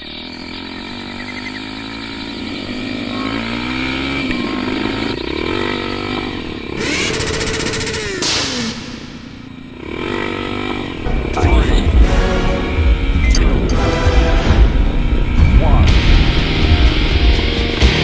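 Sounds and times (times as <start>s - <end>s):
motorcycle engines revving: 0.0s - 18.0s
loud hiss: 7.0s - 9.6s.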